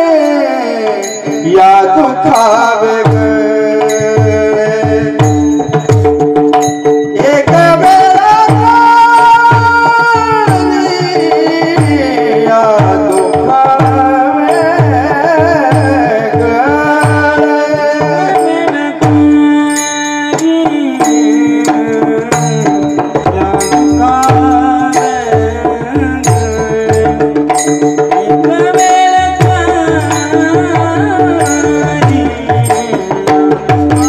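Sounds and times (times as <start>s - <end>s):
hand drum rhythm: 0.0s - 34.0s.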